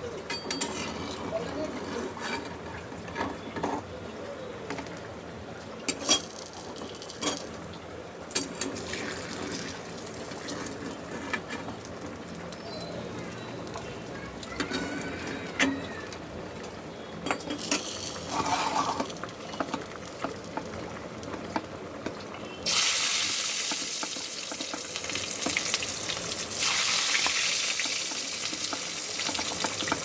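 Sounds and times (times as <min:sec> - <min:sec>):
oil sizzling in frying pan: 0:22.1 - 0:30.0.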